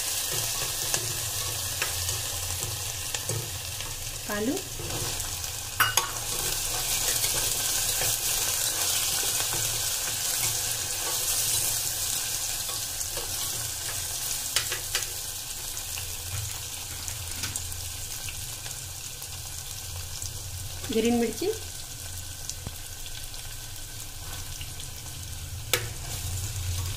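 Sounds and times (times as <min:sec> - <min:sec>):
potatoes and onions sizzling in oil: 0:00.0 - 0:26.9
metal spoon scraping and tapping pot: 0:05.8 - 0:11.6.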